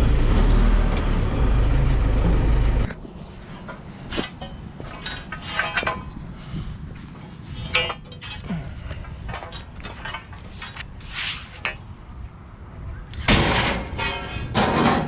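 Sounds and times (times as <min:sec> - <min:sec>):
metal pieces clinking and clanking: 0:04.1 - 0:06.2, 0:07.5 - 0:11.8, 0:13.2 - 0:15.0.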